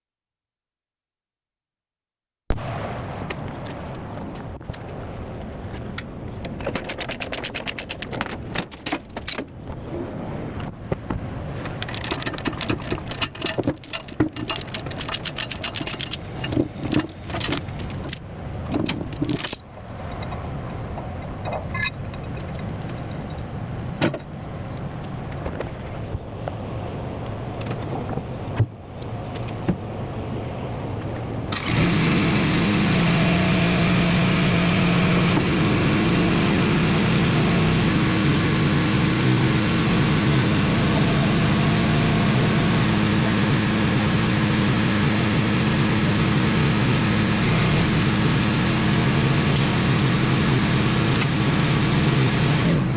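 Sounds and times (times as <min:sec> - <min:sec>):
chains clanking and rattling: 0:06.6 - 0:09.5, 0:11.8 - 0:19.7, 0:21.4 - 0:23.5
diesel engine starting and running: 0:31.4 - 0:52.9.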